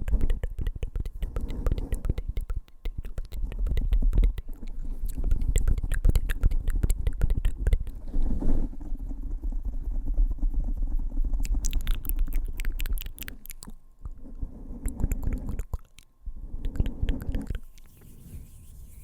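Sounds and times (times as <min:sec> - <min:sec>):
fingers tapping on microphone: 0:00.0 - 0:08.0
wet mouth clicks: 0:00.0 - 0:08.3, 0:11.2 - 0:14.2, 0:14.8 - 0:18.1.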